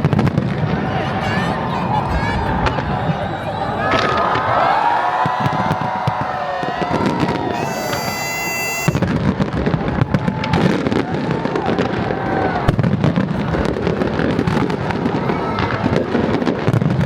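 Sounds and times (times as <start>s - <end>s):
crowd voices: 0.0s - 17.0s
fireworks bursting and crackling: 7.0s - 17.0s
steady high tone: 7.6s - 9.0s.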